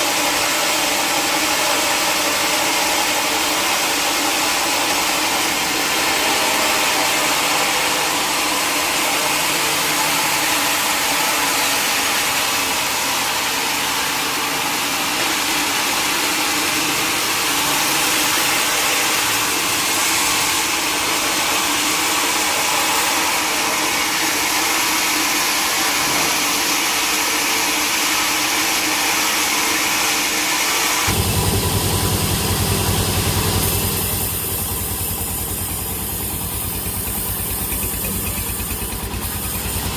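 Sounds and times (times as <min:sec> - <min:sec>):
sawmill machinery hum: 0:00.0 - 0:39.9
low pulsing engine: 0:31.1 - 0:39.9.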